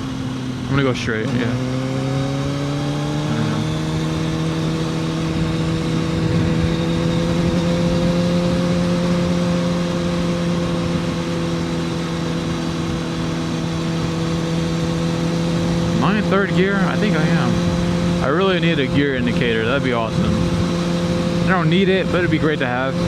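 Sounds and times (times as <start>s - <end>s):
motorcycle engine under way: 0.0s - 23.0s
wind rush: 3.3s - 9.4s.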